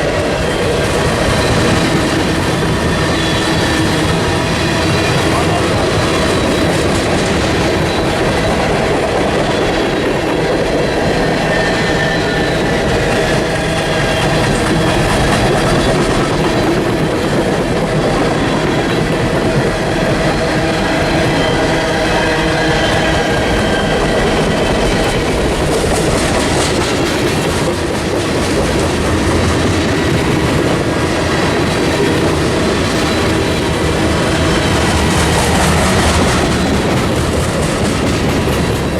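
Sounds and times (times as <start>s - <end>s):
train cars rolling on rails: 0.0s - 38.9s
wheels clicking over rail joints: 22.9s - 38.9s.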